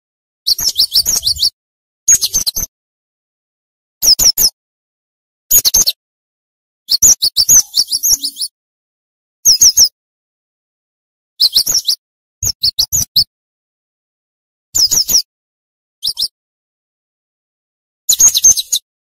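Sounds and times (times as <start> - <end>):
bird singing sharp high notes: 6.9 - 8.5.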